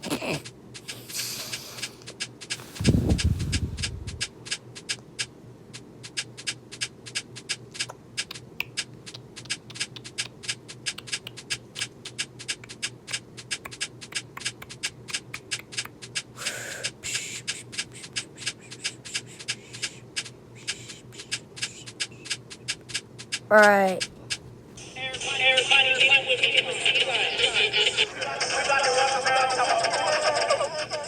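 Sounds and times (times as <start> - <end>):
low steady hum: 0.0 - 31.0
rapid clicks: 6.0 - 24.4.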